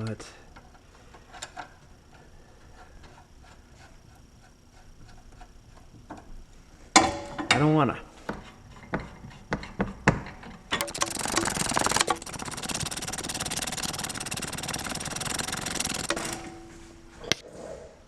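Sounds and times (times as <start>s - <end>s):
power tool rattling: 10.7s - 16.6s
sharp clicks: 10.8s - 16.4s.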